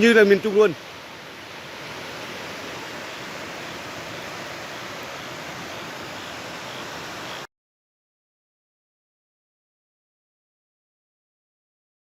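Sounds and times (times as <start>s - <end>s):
floodwater rushing: 0.0s - 7.5s.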